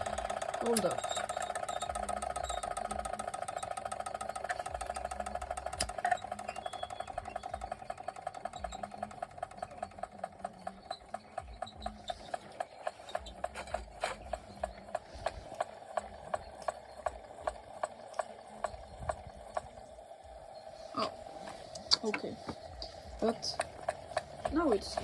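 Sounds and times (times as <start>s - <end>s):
toy steam engine chuffing: 0.0s - 25.0s.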